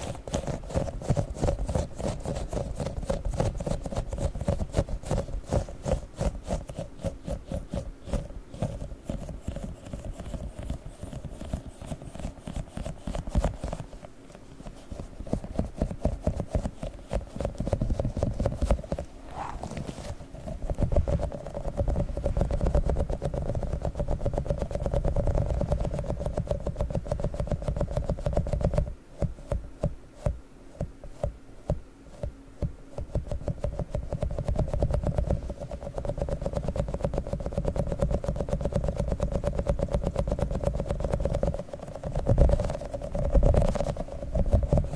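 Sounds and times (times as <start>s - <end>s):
sticky toy crackling and clicking: 0.0s - 19.1s, 20.3s - 28.9s, 33.0s - 44.9s.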